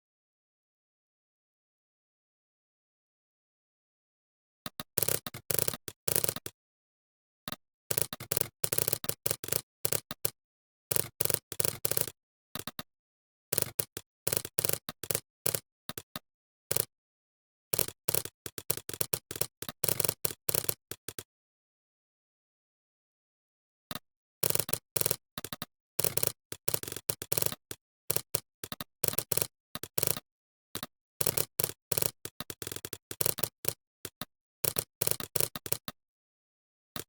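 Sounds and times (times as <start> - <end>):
computer keyboard typing: 4.7 - 6.5, 7.9 - 10.3, 10.9 - 12.8, 13.6 - 16.1, 24.4 - 30.2, 30.8 - 36.0.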